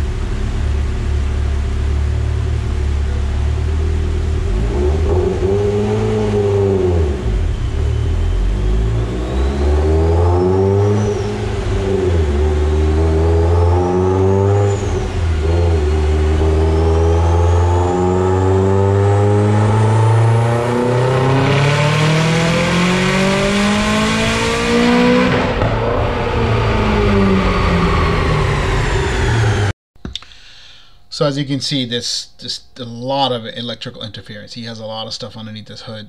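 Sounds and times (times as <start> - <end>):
car engine accelerating: 0.0 - 29.7
turbo whistle: 7.2 - 11.6.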